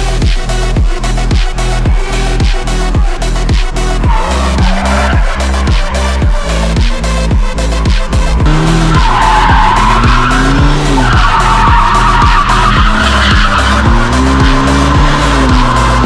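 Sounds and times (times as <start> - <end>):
car engine revving: 0.0 - 16.0
dance music with steady beat: 0.0 - 16.0
tyres squealing: 8.4 - 16.0.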